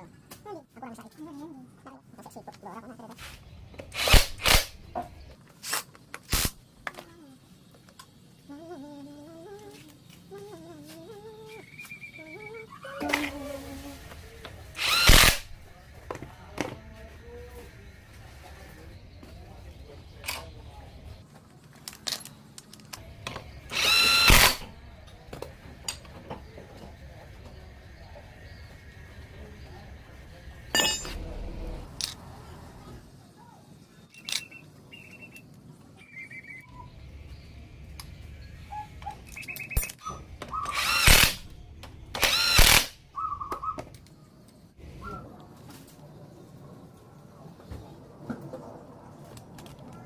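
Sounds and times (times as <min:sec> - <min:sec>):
power tool whining: 0:14.8 - 0:15.6, 0:23.6 - 0:24.7, 0:40.5 - 0:41.5, 0:42.1 - 0:43.0
tools clinking on metal: 0:30.7 - 0:31.2, 0:39.3 - 0:40.2.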